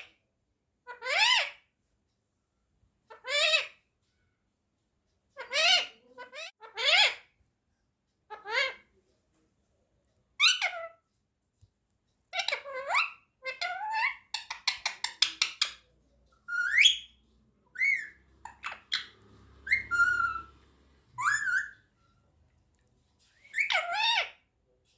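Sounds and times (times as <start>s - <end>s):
parakeet whistling and calling: 16.5s - 22.0s, 23.4s - 24.4s.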